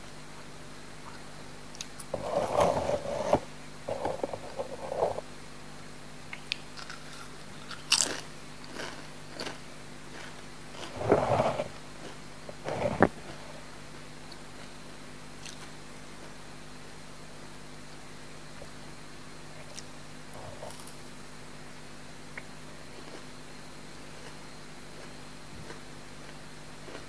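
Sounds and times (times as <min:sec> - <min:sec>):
chips crunching: 0:06.7 - 0:11.0, 0:20.6 - 0:21.0.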